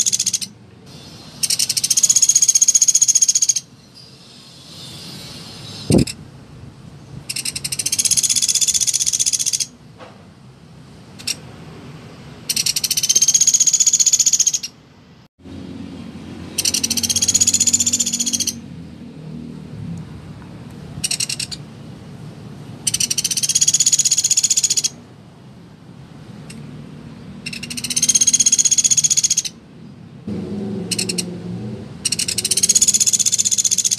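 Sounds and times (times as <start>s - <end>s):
woodpecker rattling trills: 0.0s - 0.6s, 1.4s - 3.7s, 7.3s - 9.7s, 12.5s - 14.7s, 16.5s - 18.6s, 21.0s - 21.6s, 22.9s - 25.0s, 27.4s - 29.6s, 30.9s - 31.3s, 32.0s - 33.9s.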